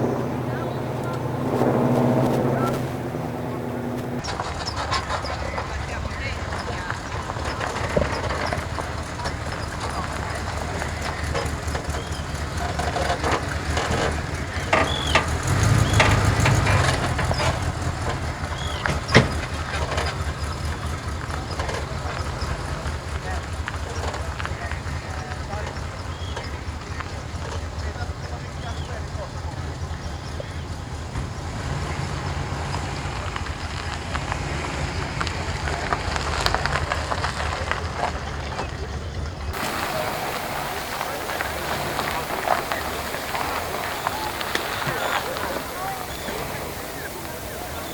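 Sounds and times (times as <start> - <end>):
car passing: 0.0 - 4.4, 39.6 - 47.9
car engine rumbling: 0.0 - 23.1, 39.6 - 47.9
high chirps: 39.6 - 47.9.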